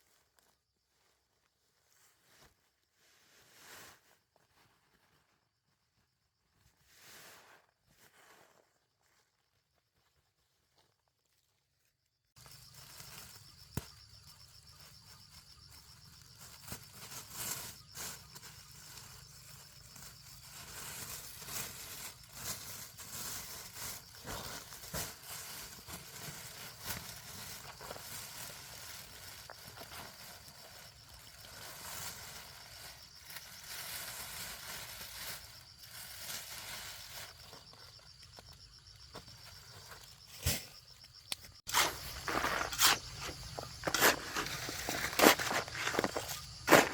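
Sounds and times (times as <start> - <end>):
rustling: 12.4 - 46.9.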